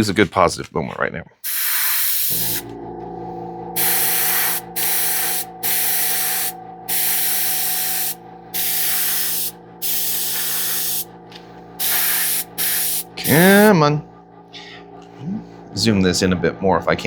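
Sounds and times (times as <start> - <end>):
airbrush spraying hisses: 1.4 - 2.6, 3.8 - 11.1, 11.8 - 13.7
motor hum: 2.3 - 16.8.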